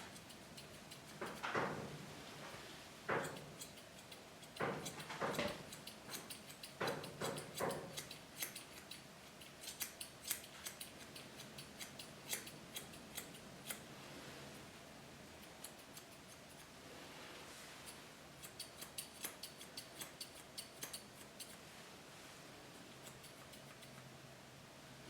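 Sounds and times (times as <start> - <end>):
shears snipping hair: 0.0 - 1.9, 3.0 - 13.9, 15.3 - 16.8, 17.8 - 21.6, 22.7 - 24.1.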